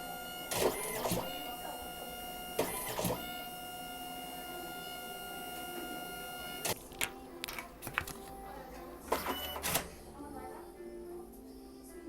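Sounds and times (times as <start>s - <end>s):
high electric machine whine: 0.0s - 7.4s.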